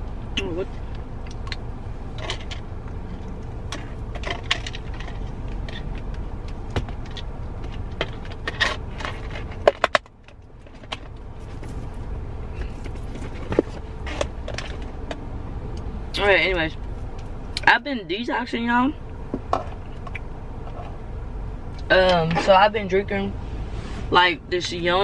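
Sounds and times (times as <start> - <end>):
low cabin rumble: 0.0 - 25.0
clicks and rattling in car: 0.4 - 15.3, 19.2 - 21.0.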